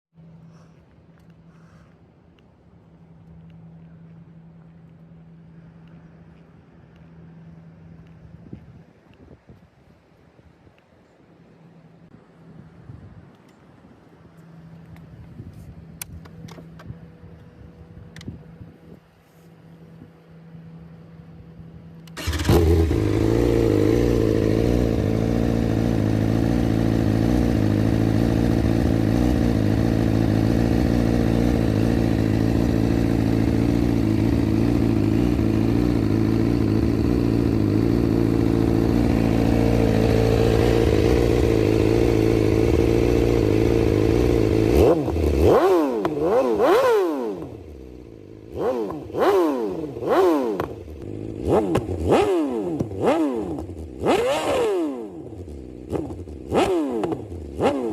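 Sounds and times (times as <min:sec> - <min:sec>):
motorcycle engine starting and idling: 0:20.4 - 0:57.9
motorcycle engine revving: 0:22.0 - 0:57.9.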